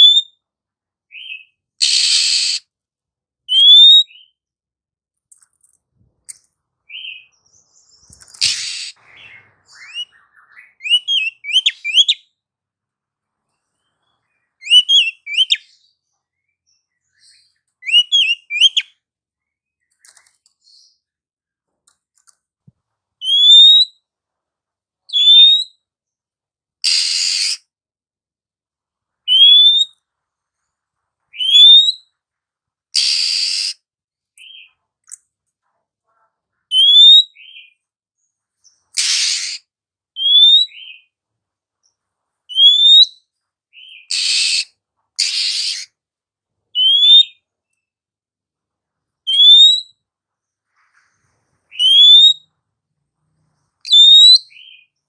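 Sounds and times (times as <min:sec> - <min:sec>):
bird harsh rasping call: 0:01.8 - 0:02.6, 0:08.4 - 0:12.1, 0:26.8 - 0:27.6, 0:33.0 - 0:33.8, 0:39.0 - 0:41.1, 0:43.8 - 0:45.9
bird rising whistle: 0:01.8 - 0:02.6, 0:33.0 - 0:33.8, 0:51.7 - 0:52.4, 0:53.9 - 0:54.4.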